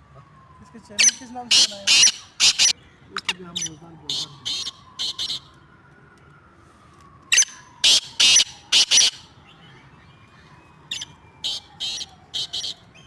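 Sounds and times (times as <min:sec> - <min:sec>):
francolin calling: 0:07.4 - 0:09.2.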